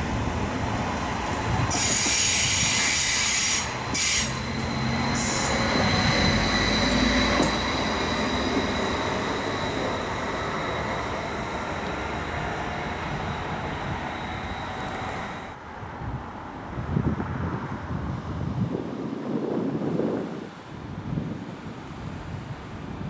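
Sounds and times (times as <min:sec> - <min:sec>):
train wheels rumbling on rails: 0:00.0 - 0:15.6
loud high hissing screech: 0:01.7 - 0:15.6.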